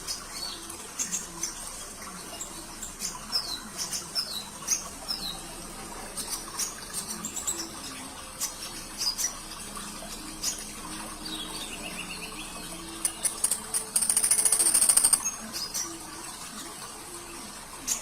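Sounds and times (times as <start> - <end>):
trickling water: 0.0 - 18.0
fast high rattling trill: 13.0 - 15.3.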